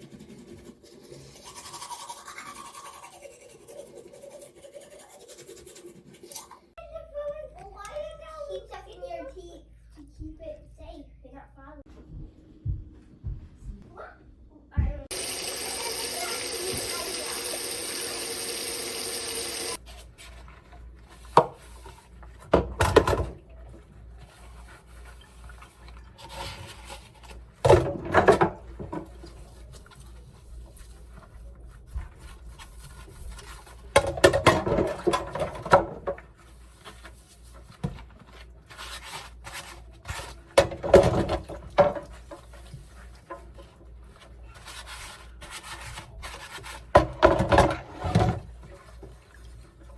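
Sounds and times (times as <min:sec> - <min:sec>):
water running: 0:15.1 - 0:19.8
rubbing of things handled: 0:15.1 - 0:49.9.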